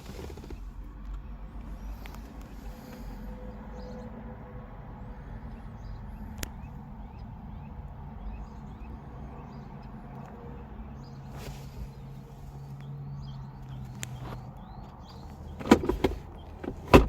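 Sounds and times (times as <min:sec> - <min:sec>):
outdoor background rumble: 0:00.0 - 0:17.0
short rustle: 0:11.3 - 0:12.6.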